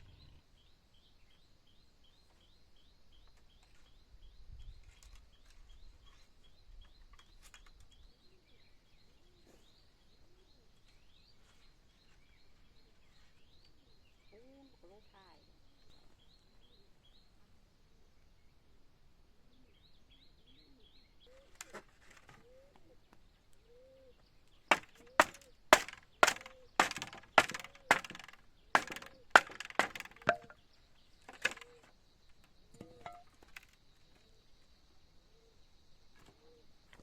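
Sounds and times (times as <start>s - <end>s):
sharp chopping blows: 24.7s - 30.5s.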